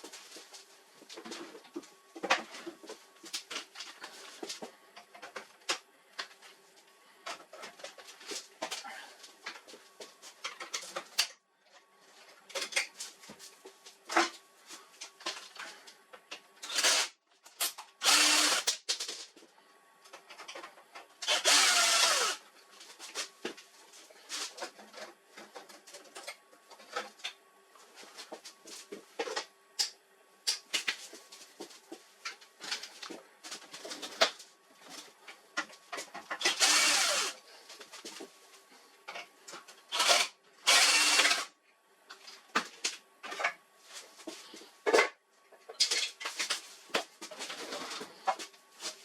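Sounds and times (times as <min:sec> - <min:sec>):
power screwdriver whirring: 0:16.6 - 0:17.1, 0:18.0 - 0:18.7, 0:21.2 - 0:22.4, 0:36.4 - 0:37.4, 0:39.9 - 0:41.5.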